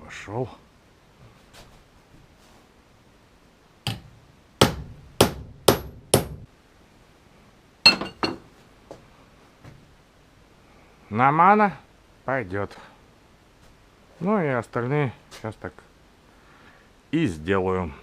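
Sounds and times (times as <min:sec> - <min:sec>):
hammer striking steel: 0:04.6 - 0:06.5, 0:07.9 - 0:08.4.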